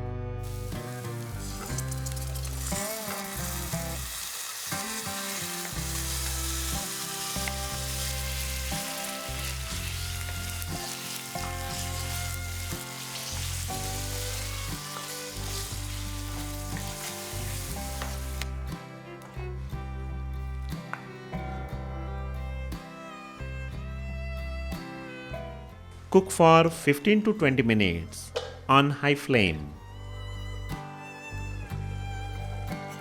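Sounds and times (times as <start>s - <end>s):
background music: 0.0s - 33.0s
chicken sizzling in hot oil: 0.4s - 18.6s.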